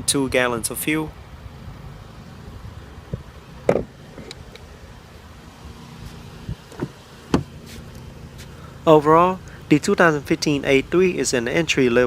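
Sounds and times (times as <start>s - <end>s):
soft knocks: 3.1s - 3.9s.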